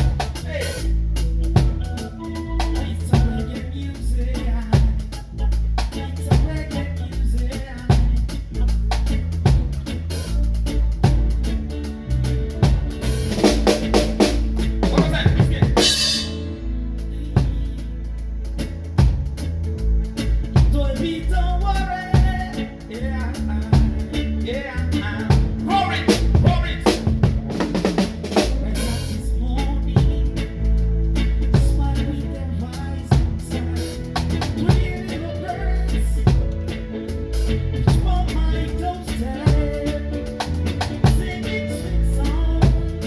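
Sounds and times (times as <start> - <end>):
deep bass line: 0.0 - 43.0
reggae band playing: 0.0 - 43.0
drum kit strikes: 12.2 - 16.5, 25.3 - 29.2.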